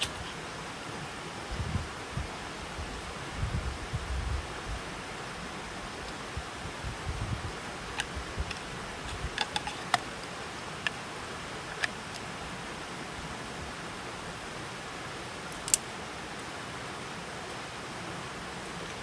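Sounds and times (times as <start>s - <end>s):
running water hiss: 0.0s - 19.0s
sharp clicks and knocks: 8.0s - 10.1s.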